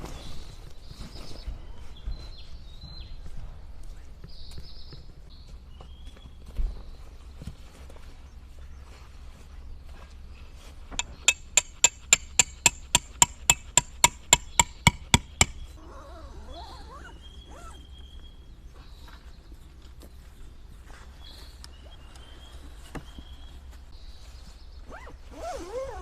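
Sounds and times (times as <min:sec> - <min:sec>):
hammer striking metal: 0:11.0 - 0:15.6.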